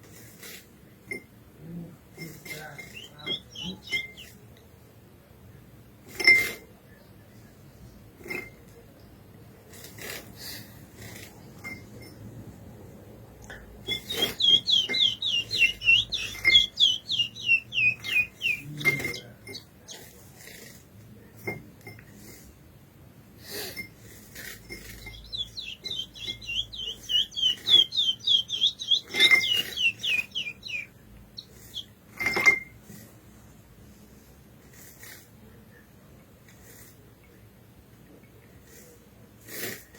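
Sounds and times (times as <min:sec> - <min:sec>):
finch singing whistled notes: 0:02.6 - 0:04.4, 0:13.8 - 0:20.1, 0:24.7 - 0:32.0.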